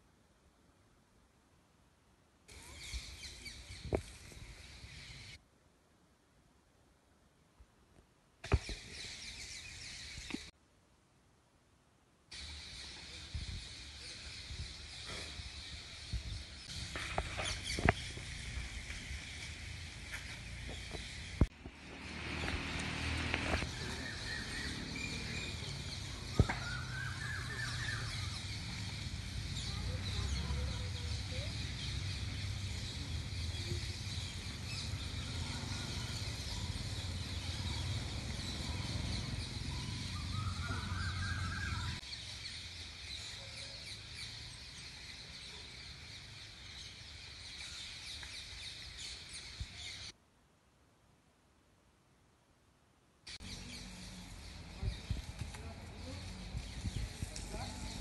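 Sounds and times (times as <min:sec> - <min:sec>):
birds calling: 0:12.4 - 0:50.1.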